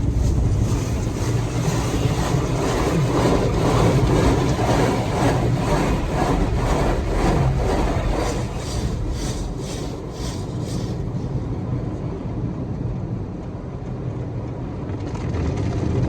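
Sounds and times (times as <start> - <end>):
car wash hissing sweeps: 0.0 - 11.4
car wash equipment rumbling: 0.0 - 11.6.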